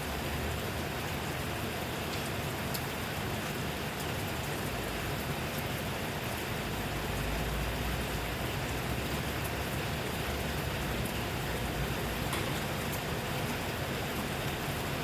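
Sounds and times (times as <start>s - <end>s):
steady rain hiss: 0.2s - 15.0s
raindrops ticking: 1.8s - 15.0s.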